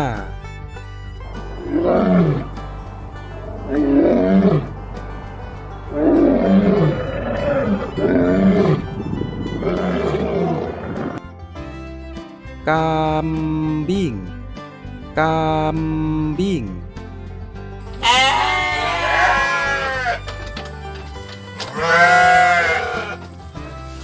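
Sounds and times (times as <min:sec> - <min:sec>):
lion roaring: 0:01.6 - 0:08.9, 0:09.6 - 0:11.2.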